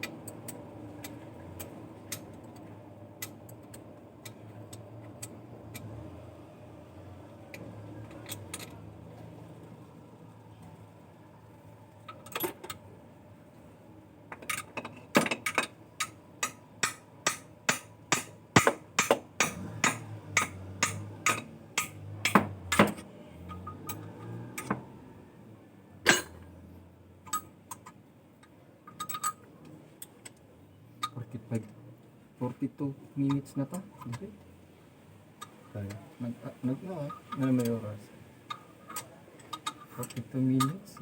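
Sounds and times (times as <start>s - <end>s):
sharp knocks: 16.4s - 23.0s.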